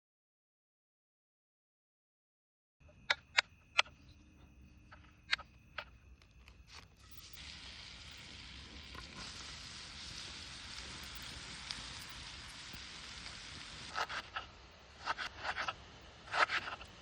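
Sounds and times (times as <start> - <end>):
food sizzling: 6.7 - 17.0.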